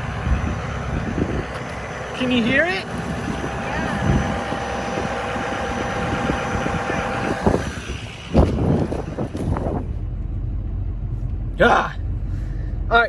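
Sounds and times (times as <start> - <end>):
steady high whine: 0.0 - 10.2
diesel engine idling: 0.0 - 13.0.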